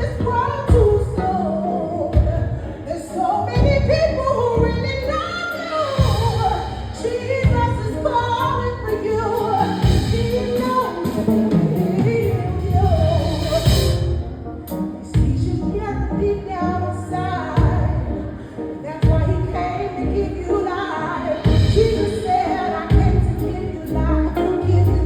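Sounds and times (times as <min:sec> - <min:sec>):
singing voice: 0:00.0 - 0:14.0, 0:15.0 - 0:25.0
heavy steady beat: 0:09.4 - 0:15.7, 0:21.4 - 0:24.0.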